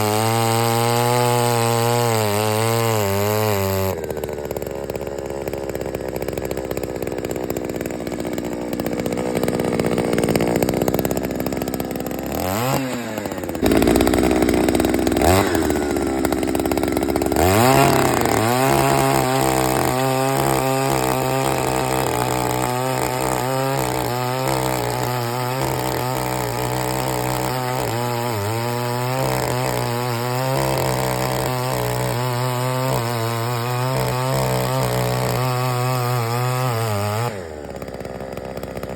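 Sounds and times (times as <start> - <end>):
two-stroke auger engine revving: 0.0 - 38.9.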